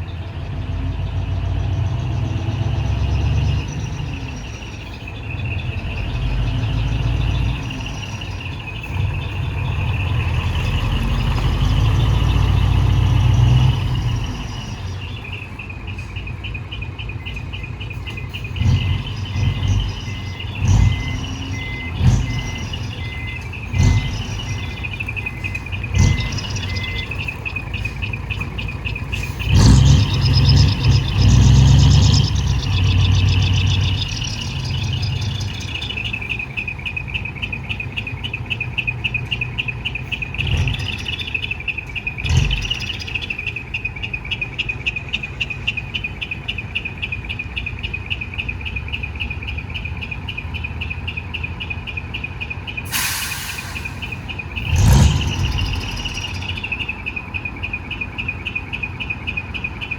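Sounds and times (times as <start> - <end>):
diesel truck engine revving: 0.0 - 59.9
faint repeating beep: 14.1 - 52.9.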